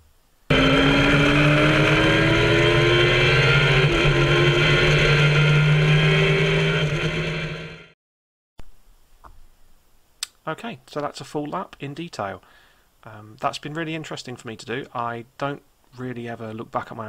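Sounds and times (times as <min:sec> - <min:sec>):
motorcycle engine revving: 0:00.5 - 0:08.0.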